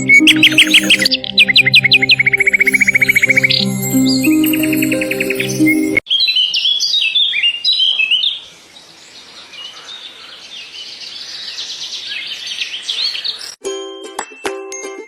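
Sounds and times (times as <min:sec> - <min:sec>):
music: 0:00.0 - 0:06.0, 0:13.6 - 0:15.0
sharp whistled bird notes: 0:00.0 - 0:08.3
high bird twittering: 0:00.0 - 0:08.5.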